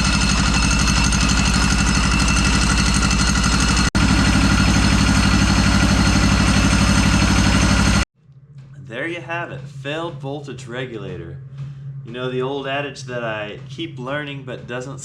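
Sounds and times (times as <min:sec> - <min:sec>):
diesel engine idling: 0:00.0 - 0:08.1.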